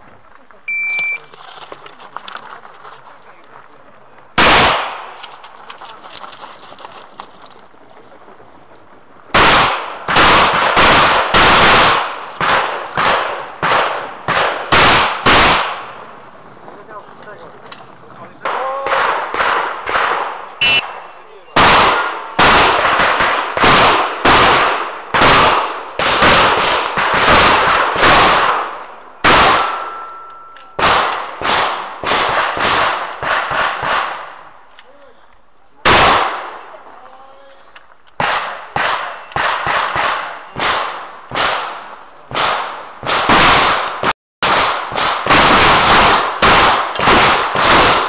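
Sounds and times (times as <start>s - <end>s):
shotgun shots with echo: 4.4s - 5.2s, 9.3s - 16.0s, 18.4s - 34.4s, 35.9s - 36.7s, 38.2s - 48.0s.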